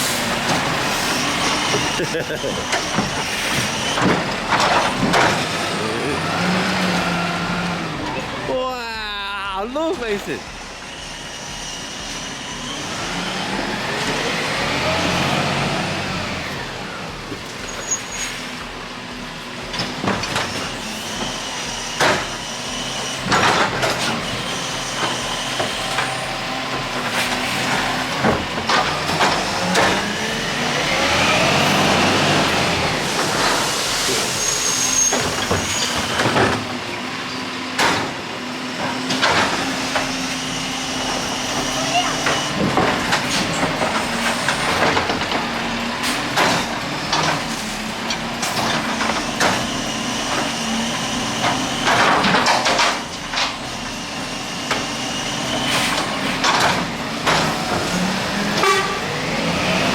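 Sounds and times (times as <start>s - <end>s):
metal bangs and clanks: 0.0s - 5.7s, 17.1s - 30.4s, 37.7s - 54.0s
garbage truck engine revving: 0.0s - 8.8s, 9.8s - 59.9s.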